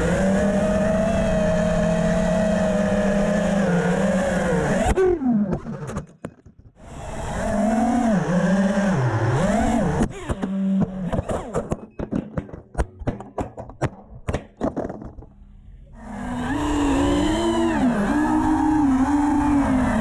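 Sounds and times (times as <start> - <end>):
drone motors whining: 0.0 - 11.9, 15.8 - 20.0.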